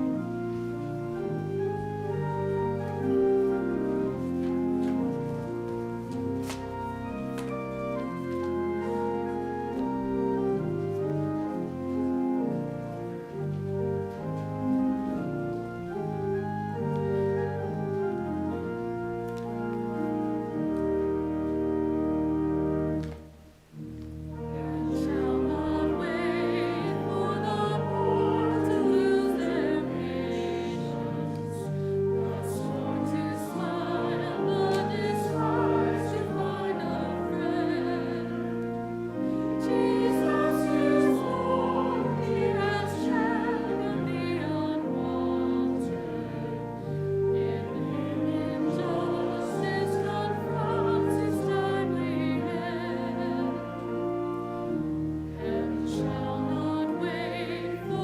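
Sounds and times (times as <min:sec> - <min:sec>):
organ chords: 0:00.0 - 0:58.0
voices singing with vibrato: 0:24.4 - 0:58.0.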